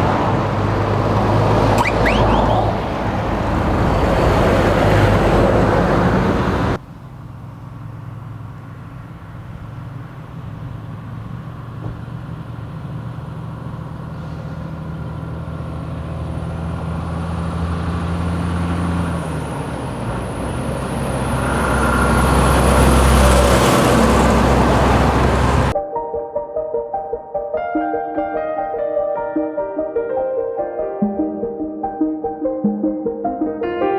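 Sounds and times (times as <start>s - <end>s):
diesel truck engine running: 0.0s - 25.8s
loud vehicle sound: 0.0s - 25.8s.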